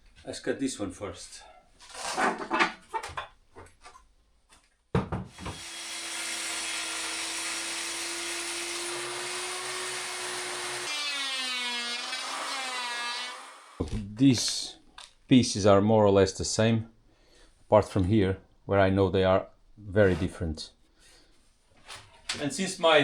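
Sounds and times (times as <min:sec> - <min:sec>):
table saw cutting plywood: 0:05.3 - 0:13.9.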